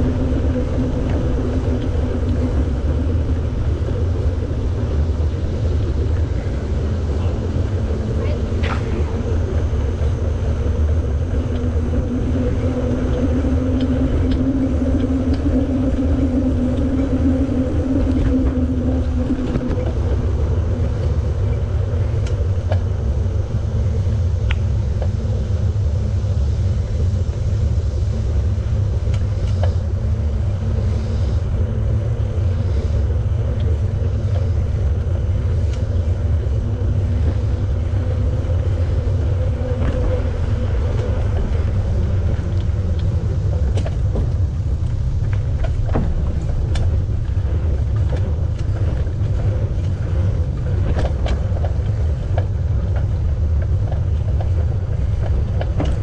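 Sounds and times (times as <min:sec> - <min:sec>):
bicycle tyres rolling on path: 0:00.0 - 0:56.0
steady hum: 0:00.0 - 0:56.0
wind on microphone: 0:00.0 - 0:56.0.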